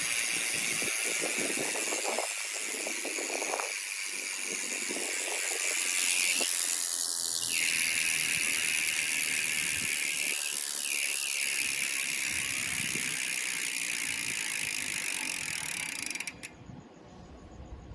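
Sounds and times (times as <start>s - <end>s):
bicycle freehub ratcheting buzz: 0.0s - 16.6s.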